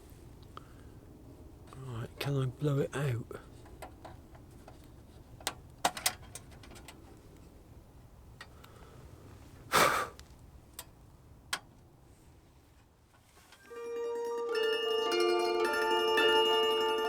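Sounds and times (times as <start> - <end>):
puff of breath: 9.7 - 10.2.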